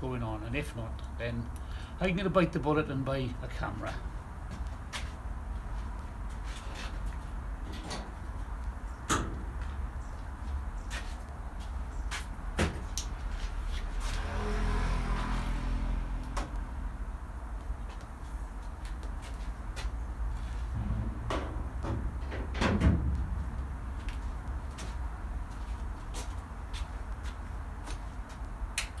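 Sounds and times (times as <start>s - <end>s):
steady low hum: 20.1s - 27.2s.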